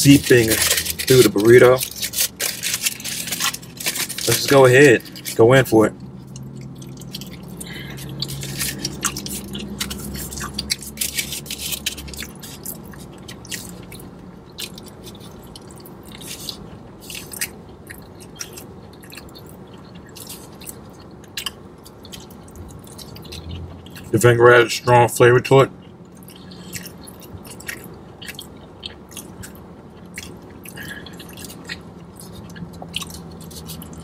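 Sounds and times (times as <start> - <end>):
person chewing food: 0.0 - 24.2, 25.7 - 34.0
wet mouth clicks and smacks: 6.0 - 14.0, 30.1 - 34.0.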